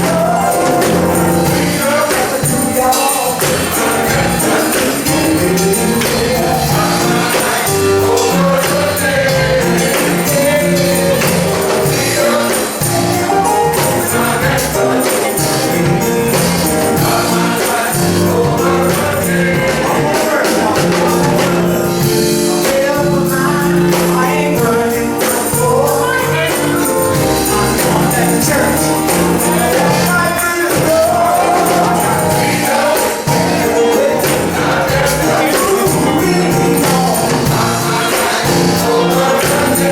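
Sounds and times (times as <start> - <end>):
male chorus singing gospel: 0.0 - 39.9
tambourine shaking: 0.0 - 39.9.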